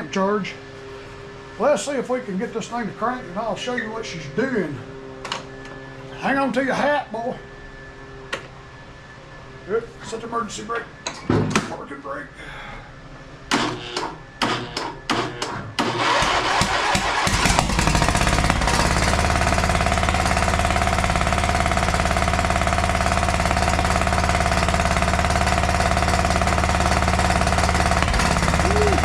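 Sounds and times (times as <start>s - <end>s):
engine backfiring: 13.5s - 29.0s
engine cranking on starter: 13.5s - 29.0s
lawn tractor engine running: 13.5s - 29.0s.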